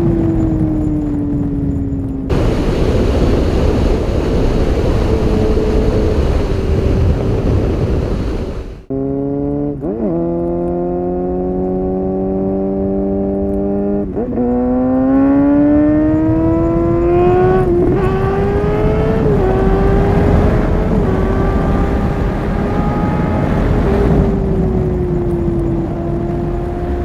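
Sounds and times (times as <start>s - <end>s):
motorcycle engine accelerating: 0.0s - 27.0s.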